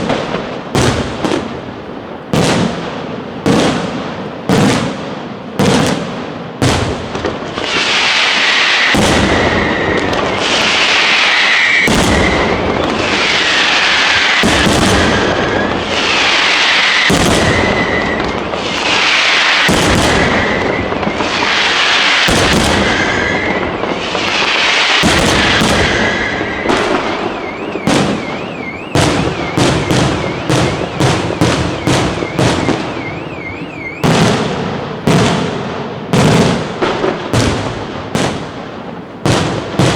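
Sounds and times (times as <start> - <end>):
firework bursts hissing and crackling: 0.0 - 39.9
sharp firework reports: 5.6 - 38.5
firework whistles: 7.6 - 35.2.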